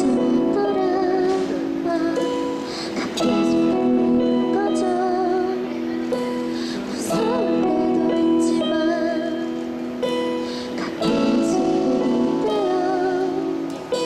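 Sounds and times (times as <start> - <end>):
acoustic guitar: 0.0 - 14.0
person singing with vibrato: 0.0 - 14.0
sharp guitar strums: 6.0 - 14.0.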